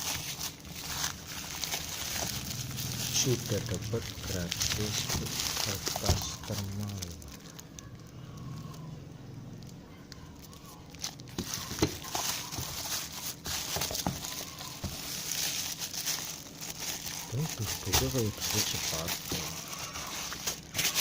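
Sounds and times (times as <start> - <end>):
packaging crinkling and rustling: 0.0 - 8.8, 9.6 - 21.0.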